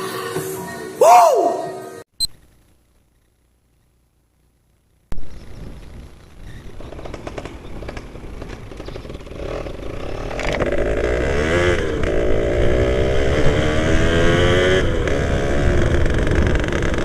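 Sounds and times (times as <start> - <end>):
motorcycle engine revving: 5.4 - 17.0.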